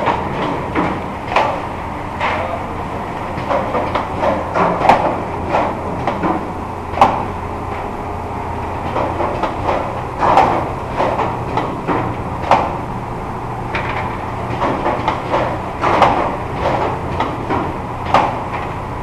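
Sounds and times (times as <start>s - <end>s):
mechanical clacks and knocks: 0.0s - 7.9s, 8.6s - 12.9s, 13.7s - 18.8s
machine humming: 0.0s - 19.0s.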